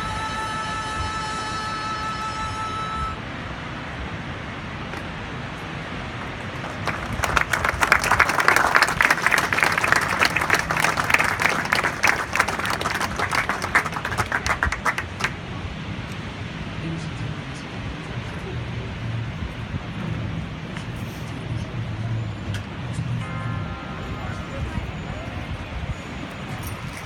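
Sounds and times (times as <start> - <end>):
crowd applauding: 6.3 - 15.5.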